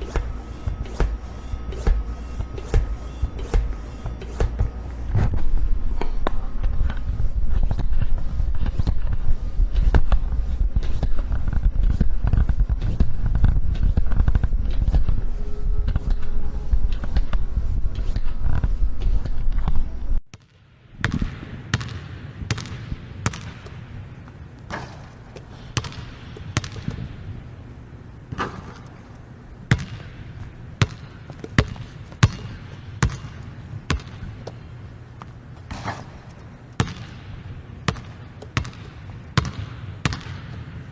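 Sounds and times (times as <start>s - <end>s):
loud low rumble: 0.0s - 20.2s
basketball bouncing on hard court: 29.7s - 30.1s, 30.8s - 34.2s, 36.8s - 37.2s, 37.9s - 40.7s.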